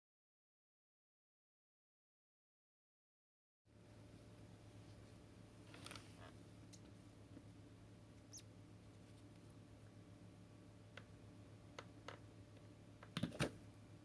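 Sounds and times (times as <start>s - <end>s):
low steady hum: 3.7s - 14.0s.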